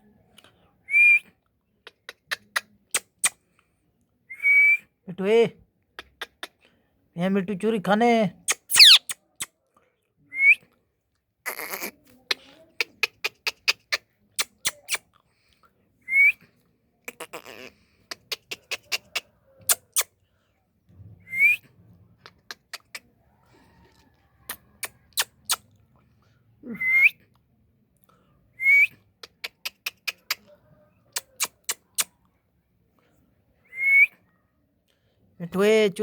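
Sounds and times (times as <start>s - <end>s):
parrot whistling: 8.5s - 9.2s.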